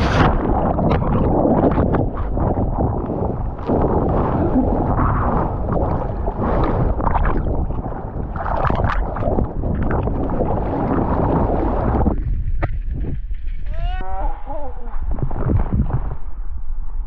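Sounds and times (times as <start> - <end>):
churning water: 0.0 - 12.7
wind rushing: 0.0 - 13.2, 15.0 - 17.0.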